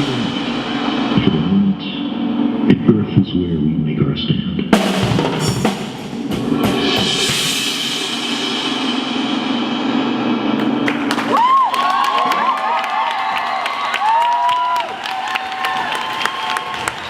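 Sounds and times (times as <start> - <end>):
cymbal roll: 0.0 - 2.8, 4.8 - 11.8
drumline loud hit: 0.0 - 3.0, 4.7 - 12.6
held ensemble chord: 0.0 - 3.1, 4.7 - 11.3
crowd whistling and cheering: 10.6 - 17.0.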